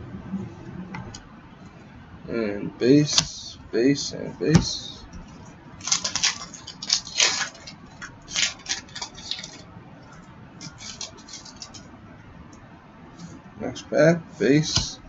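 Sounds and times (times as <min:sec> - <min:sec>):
cards rustling and sliding: 0:05.8 - 0:09.6, 0:10.6 - 0:11.9.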